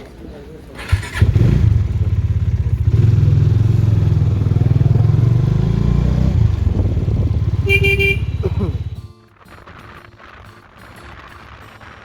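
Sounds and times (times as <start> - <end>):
motorcycle engine thumping: 6.3 - 9.1.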